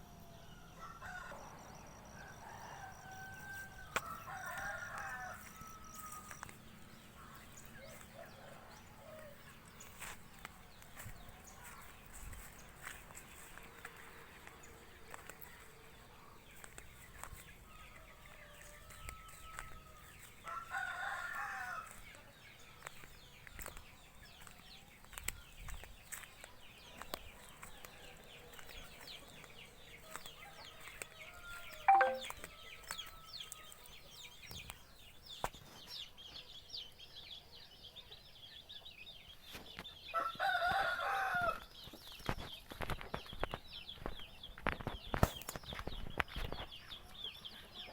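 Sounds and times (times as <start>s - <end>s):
rooster crowing: 0.4s - 6.5s, 17.8s - 22.0s, 40.2s - 41.6s
small birds chirping: 2.4s - 40.7s, 41.5s - 47.9s.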